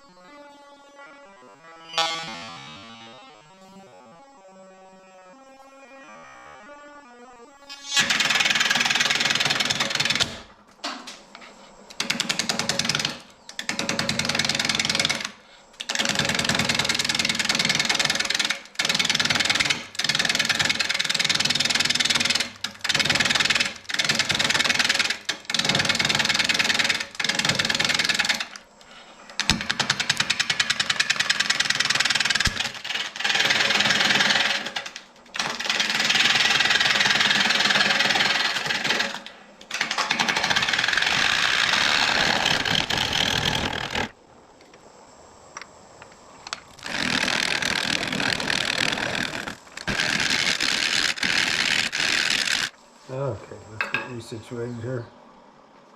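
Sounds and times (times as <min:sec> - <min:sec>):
lathe gouge chattering on wood: 0:29.3 - 0:44.1, 0:46.8 - 0:52.8.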